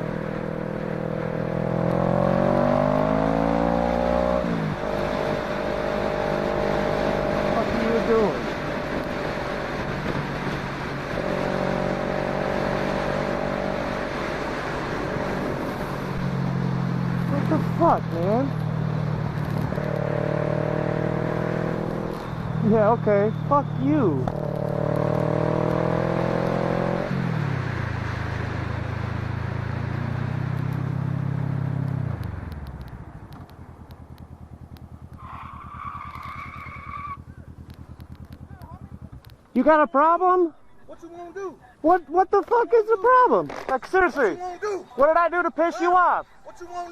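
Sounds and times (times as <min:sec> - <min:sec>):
wind and road noise: 0:00.0 - 0:46.9
motorcycle engine running: 0:30.9 - 0:39.8.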